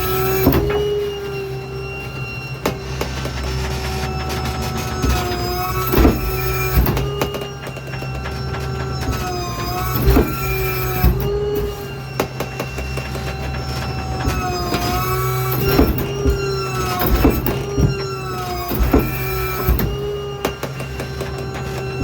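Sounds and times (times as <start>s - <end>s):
garbage truck packer squealing: 0.0s - 22.0s.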